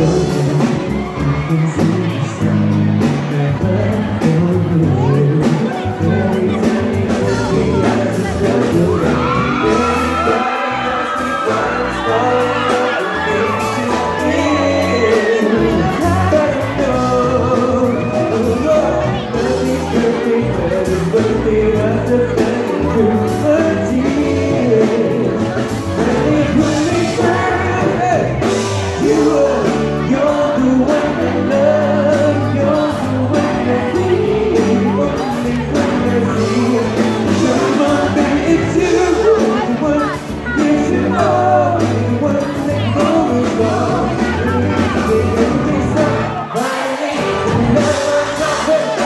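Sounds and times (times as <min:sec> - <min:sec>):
audience whooping and screaming: 0:00.0 - 0:02.8, 0:08.6 - 0:20.4
live pop band: 0:00.0 - 0:49.0
person singing: 0:00.0 - 0:49.0.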